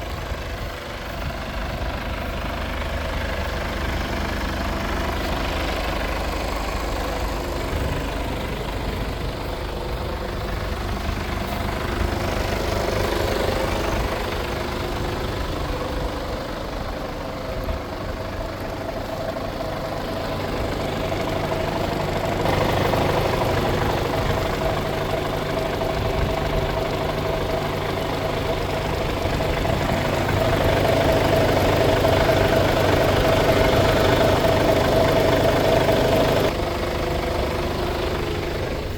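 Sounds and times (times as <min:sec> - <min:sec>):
truck diesel engine idling: 0:00.0 - 0:38.9.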